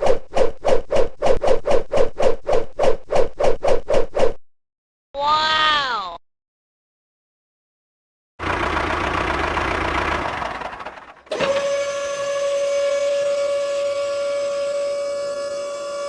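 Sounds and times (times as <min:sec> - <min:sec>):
vehicle engine rumbling: 0:08.4 - 0:11.7
steady horn or siren tone: 0:11.3 - 0:16.0.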